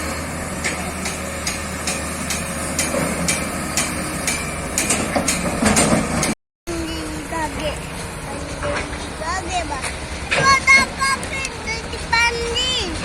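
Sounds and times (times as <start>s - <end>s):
loud metallic clatter: 0.0s - 6.4s
excavator diesel engine drone: 0.0s - 13.0s
sharp metallic knocks: 0.6s - 6.4s.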